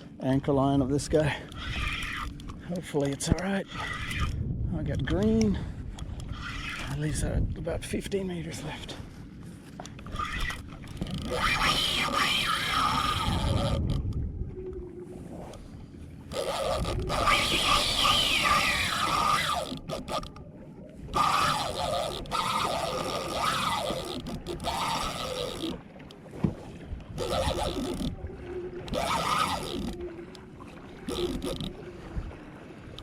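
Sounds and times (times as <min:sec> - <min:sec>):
fishing reel drag squealing: 0:01.2 - 0:02.6, 0:03.2 - 0:04.4, 0:06.2 - 0:07.3, 0:10.0 - 0:13.9, 0:16.3 - 0:20.4, 0:21.1 - 0:25.8, 0:27.2 - 0:28.2, 0:28.8 - 0:30.1, 0:31.0 - 0:31.8.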